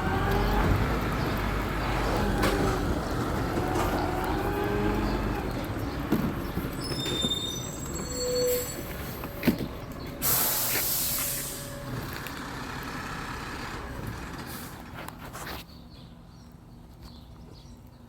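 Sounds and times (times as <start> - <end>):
garbage truck engine running: 0.0 - 15.1
air brakes hissing: 6.8 - 9.5, 10.2 - 12.0
high-pitched brake squeals: 6.8 - 9.6, 10.2 - 12.1.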